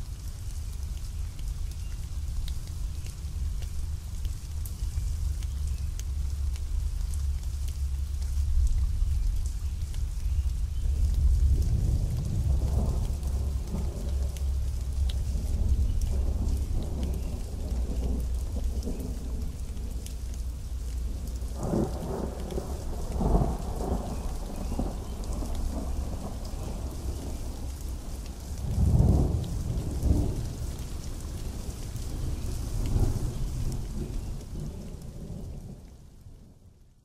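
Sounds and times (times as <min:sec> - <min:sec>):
pouring rain hissing: 0:00.0 - 0:36.4
thunder rumbling: 0:10.8 - 0:35.8.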